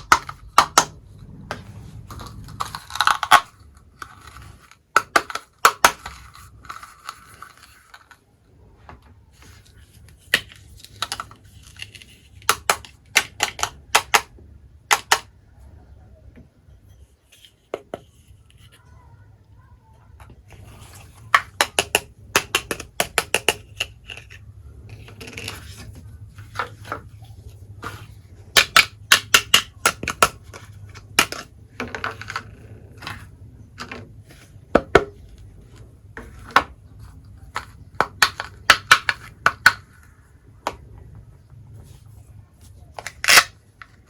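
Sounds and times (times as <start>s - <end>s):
toy pieces clicking and tapping: 0.0s - 1.0s, 2.0s - 8.1s, 10.3s - 15.3s, 20.9s - 25.6s, 27.8s - 33.2s, 37.4s - 39.9s.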